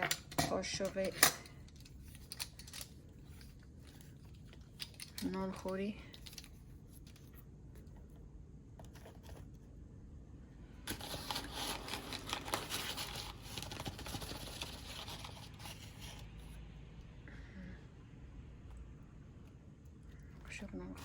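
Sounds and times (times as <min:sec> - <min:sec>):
crinkling rustling handling noise: 0:00.0 - 0:08.2, 0:10.9 - 0:16.6.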